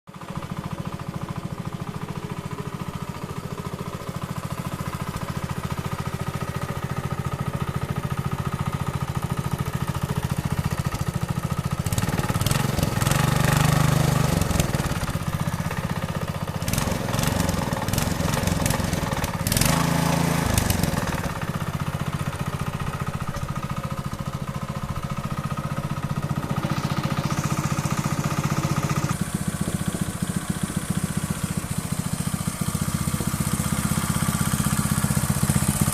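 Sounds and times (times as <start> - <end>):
small engine idling and revving: 0.1 - 35.9.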